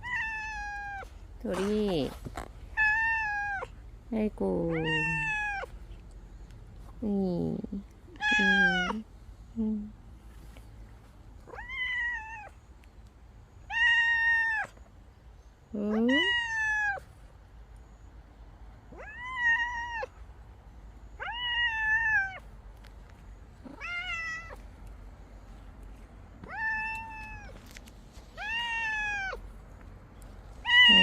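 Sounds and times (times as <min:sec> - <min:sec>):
cat meowing: 0:00.0 - 0:01.1, 0:02.7 - 0:03.8, 0:04.6 - 0:05.7, 0:08.1 - 0:09.0, 0:11.4 - 0:12.6, 0:13.6 - 0:14.8, 0:16.0 - 0:17.1, 0:18.9 - 0:20.2, 0:21.2 - 0:22.4, 0:23.6 - 0:24.6, 0:26.4 - 0:27.6, 0:28.4 - 0:29.4, 0:30.6 - 0:31.0.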